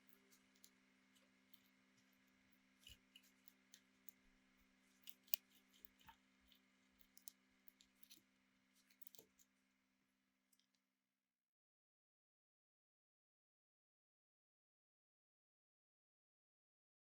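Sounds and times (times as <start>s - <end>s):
small clicks and handling noises: 0.0s - 9.6s
low steady hum: 0.0s - 10.7s.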